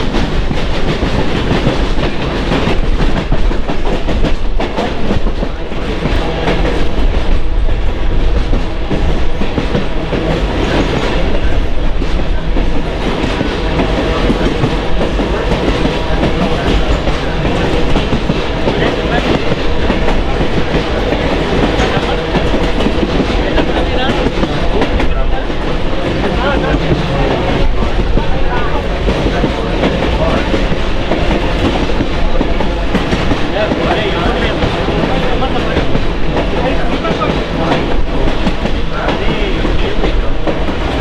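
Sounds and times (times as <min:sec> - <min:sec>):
train rumbling along track: 0:00.0 - 0:41.0.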